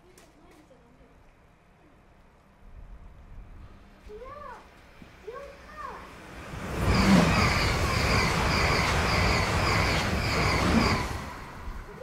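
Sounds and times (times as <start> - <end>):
train wheels rushing on rail: 4.9 - 12.0
pulsing high hiss: 5.9 - 12.0.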